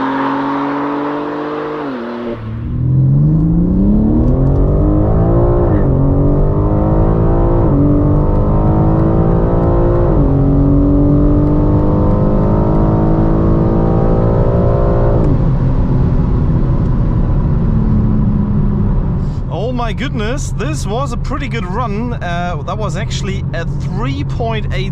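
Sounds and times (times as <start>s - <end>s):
car engine accelerating: 0.0s - 24.9s.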